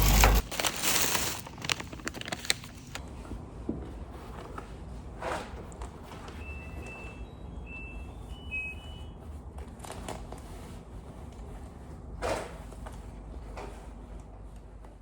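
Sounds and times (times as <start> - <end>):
objects being handled: 0.0 - 3.0.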